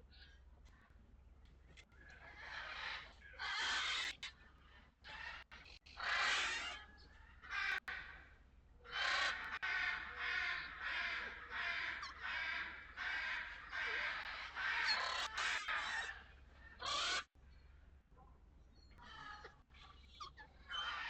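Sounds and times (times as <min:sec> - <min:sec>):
crow cawing: 0:08.9 - 0:16.2.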